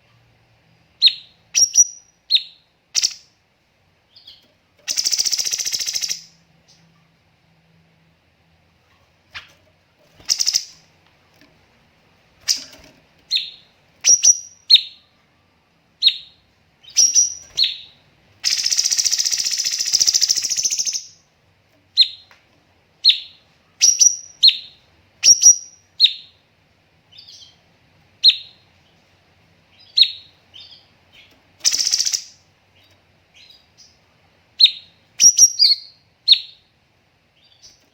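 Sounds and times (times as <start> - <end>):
bird singing sharp high calls: 1.0 - 3.3, 4.1 - 6.8, 10.2 - 10.8, 12.4 - 15.0, 16.0 - 21.2, 23.0 - 26.4, 29.7 - 34.0, 34.6 - 36.6
rapid-fire bird song burst: 10.3 - 10.8, 16.9 - 21.2, 31.6 - 32.4.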